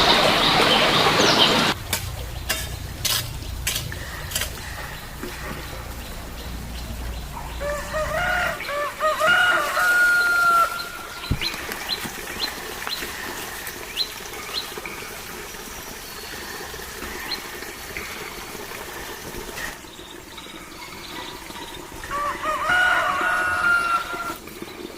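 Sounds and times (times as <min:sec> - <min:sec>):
rooster crowing: 0:07.5 - 0:11.1, 0:22.0 - 0:24.4.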